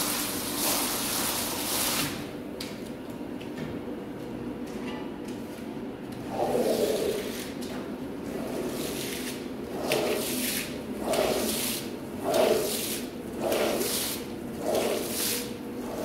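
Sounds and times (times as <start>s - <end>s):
wet rug swishing strokes: 8.8s - 16.0s.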